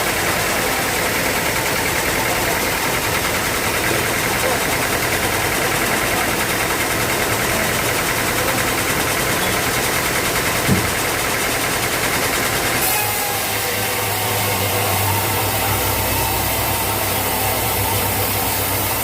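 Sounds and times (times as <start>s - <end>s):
band sawmill running: 0.0s - 19.0s
thump: 10.6s - 11.0s.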